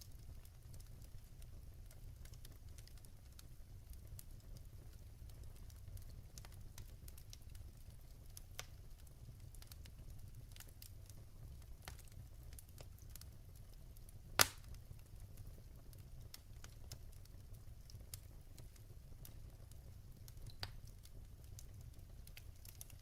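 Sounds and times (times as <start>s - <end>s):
wood fire crackling: 0.0s - 23.0s
log popping: 14.4s - 14.7s.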